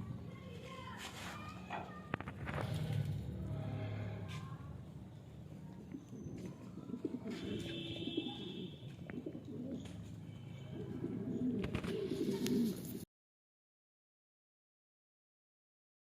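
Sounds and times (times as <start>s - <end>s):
pigeons cooing: 5.8s - 13.0s.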